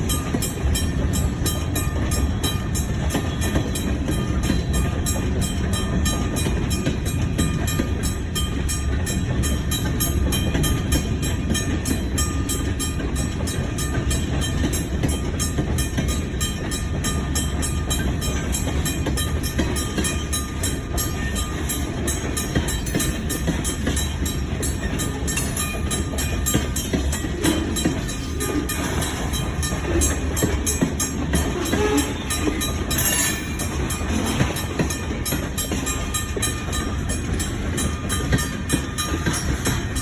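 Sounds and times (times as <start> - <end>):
train engine and wheels rumbling: 0.0 - 40.0.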